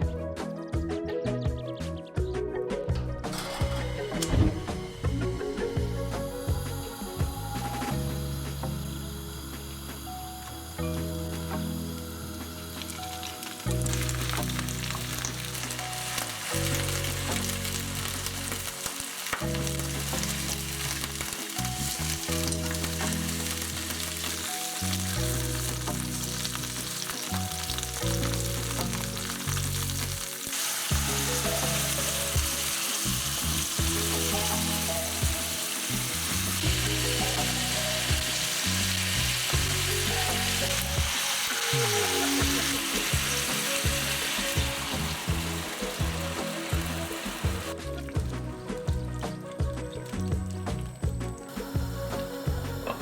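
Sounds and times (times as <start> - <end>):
soft background music: 0.0 - 53.0
food sizzling in a pan: 5.5 - 47.8.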